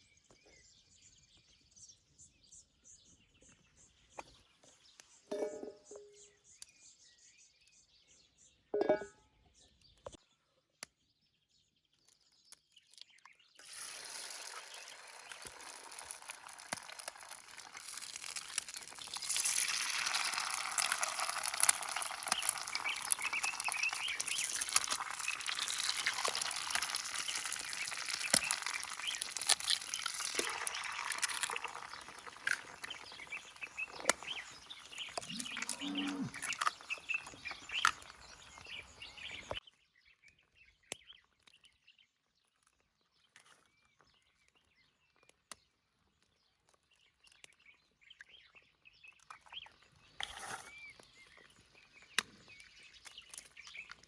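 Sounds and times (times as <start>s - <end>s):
omelette sizzling in a pan: 13.6s - 39.6s.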